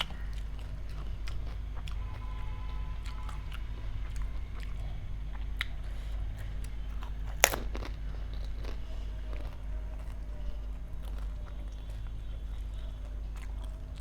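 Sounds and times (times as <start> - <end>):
crisp shells crunching while chewed: 6.5 - 14.0.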